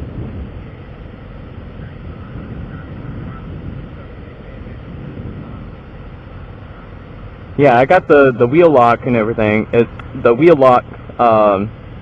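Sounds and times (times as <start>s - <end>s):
wind on microphone: 0.0s - 7.5s
vehicle and road rumble: 0.0s - 12.0s.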